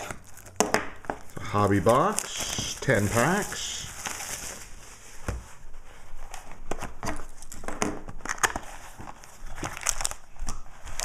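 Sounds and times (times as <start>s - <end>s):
cardboard and wrapper crinkling: 0.0s - 11.0s.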